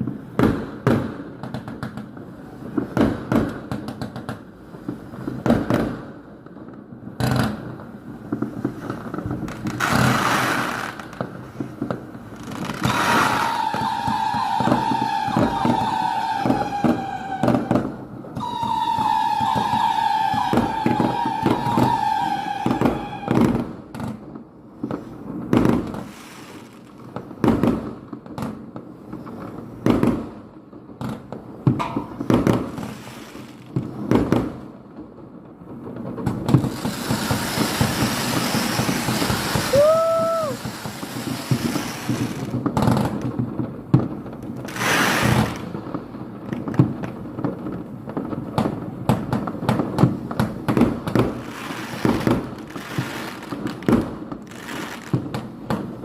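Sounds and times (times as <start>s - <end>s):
firecrackers banging: 6.8s - 24.2s, 29.6s - 56.0s.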